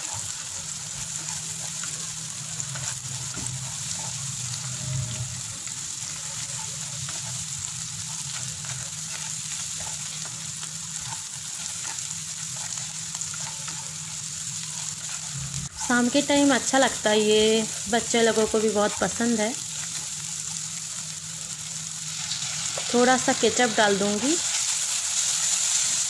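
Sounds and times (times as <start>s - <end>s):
wooden spatula scraping a pan: 0.0s - 14.0s
vegetables and egg sizzling in oil: 0.0s - 26.0s.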